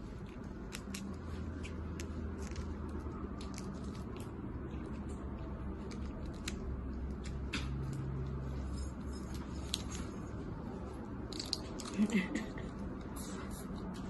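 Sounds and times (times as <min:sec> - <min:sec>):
low steady hum: 0:00.0 - 0:14.0
shells clicking and crackling: 0:11.3 - 0:12.0.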